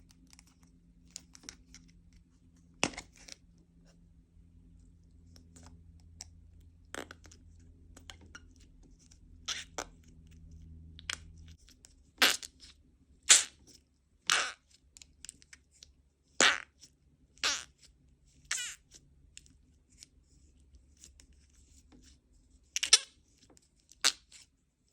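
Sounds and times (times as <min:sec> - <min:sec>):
faint clicks and handling: 0:00.0 - 0:03.7.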